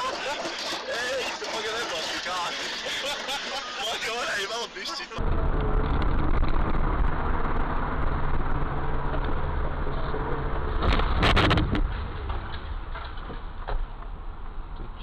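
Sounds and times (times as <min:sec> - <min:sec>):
car engine and road rumble: 0:00.0 - 0:15.0
loud sudden noise: 0:10.8 - 0:12.4.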